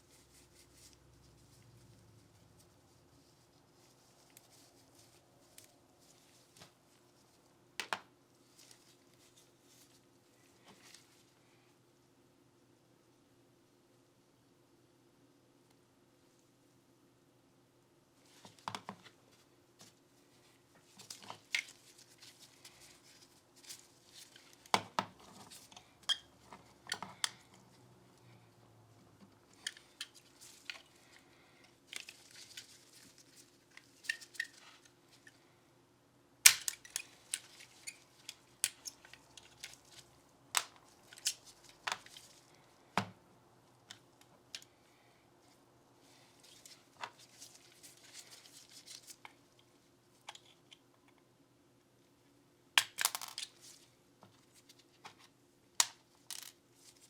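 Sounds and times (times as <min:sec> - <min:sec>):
soft rubbing: 0:00.0 - 0:07.6.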